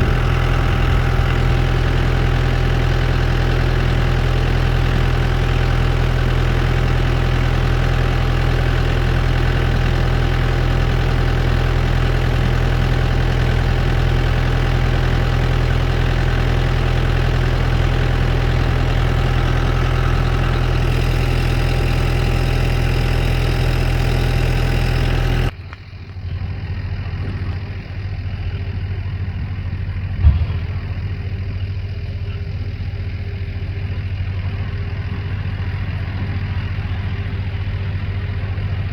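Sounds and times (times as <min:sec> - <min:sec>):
tractor engine under load: 0:00.0 - 0:38.9
thump: 0:30.2 - 0:31.0.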